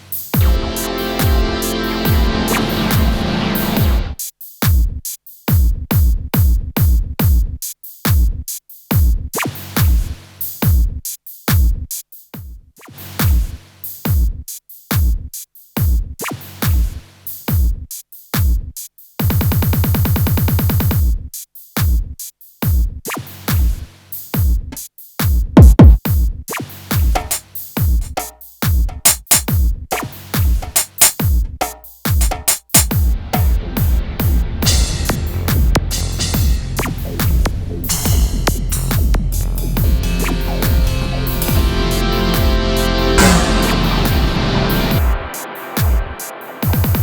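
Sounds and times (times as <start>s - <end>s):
electronic percussion hits: 0.4s - 4.0s, 25.6s - 26.0s, 27.1s - 27.4s, 29.0s - 29.5s, 30.6s - 31.2s, 32.2s - 47.0s.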